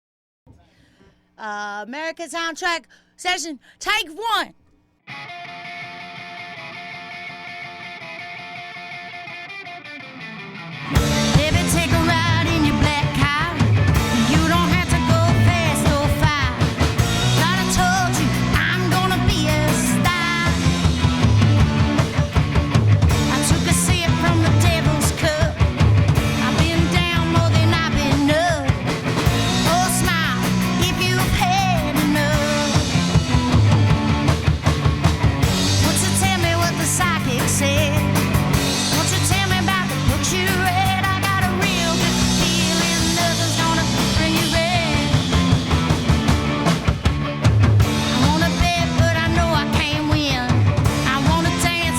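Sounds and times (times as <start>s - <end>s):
live rock band playing: 5.1s - 51.9s
lead vocal singing: 11.0s - 21.3s, 23.2s - 33.1s, 35.6s - 45.9s, 48.0s - 51.9s.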